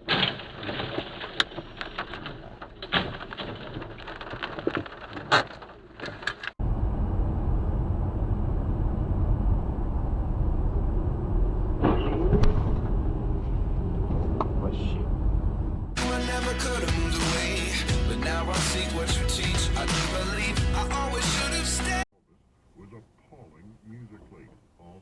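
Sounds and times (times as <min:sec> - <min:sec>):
sharp knocks and clatters: 0:00.0 - 0:06.6
low vehicle rumble: 0:06.6 - 0:22.0.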